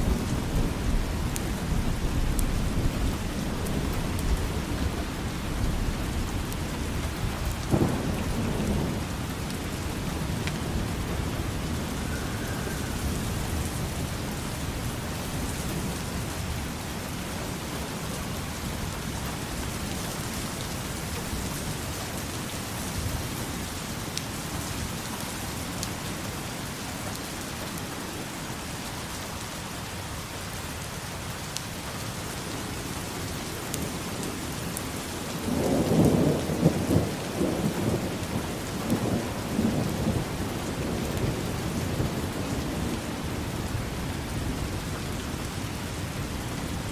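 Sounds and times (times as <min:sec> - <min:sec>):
low roll of thunder: 0:00.0 - 0:16.6, 0:35.3 - 0:46.9
steady rain falling: 0:00.0 - 0:46.9.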